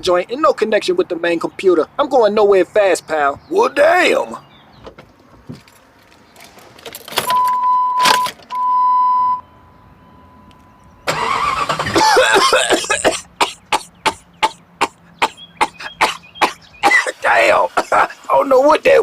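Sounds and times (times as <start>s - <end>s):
steady beeps: 7.3s - 11.1s
car engine cranking and running rough: 11.0s - 19.0s.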